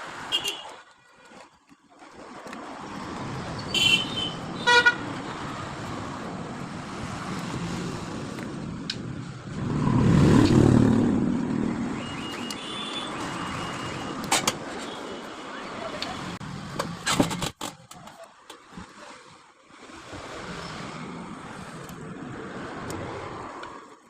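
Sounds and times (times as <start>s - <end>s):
car horn toots: 3.7s - 5.0s, 12.1s - 14.2s
vehicle passing by: 5.2s - 12.5s.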